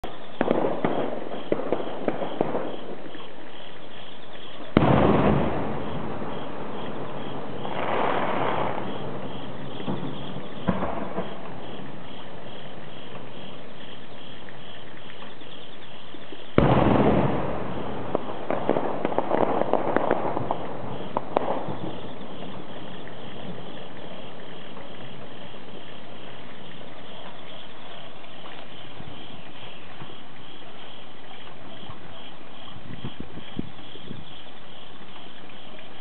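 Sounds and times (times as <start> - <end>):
firework crackling pops: 0.0 - 36.0
steady background hiss: 0.0 - 36.0
firework shell boom: 4.8 - 11.8, 16.6 - 23.8.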